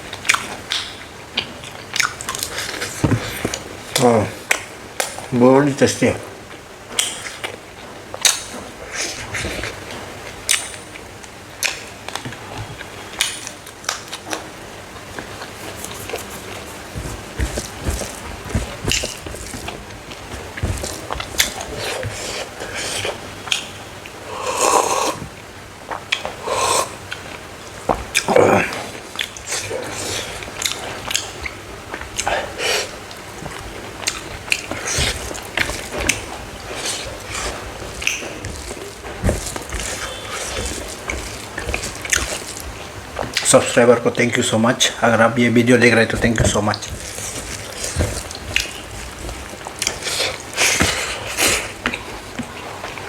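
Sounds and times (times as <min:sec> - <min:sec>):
crunchy food being chewed: 0:00.0 - 0:05.3, 0:06.5 - 0:53.0
clicking mouth noises: 0:23.0 - 0:23.7.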